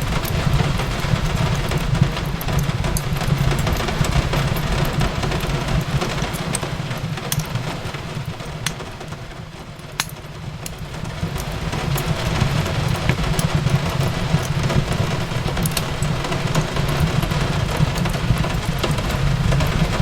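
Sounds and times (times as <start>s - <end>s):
rain hissing: 0.0s - 20.0s
wood fire crackling: 0.0s - 20.0s.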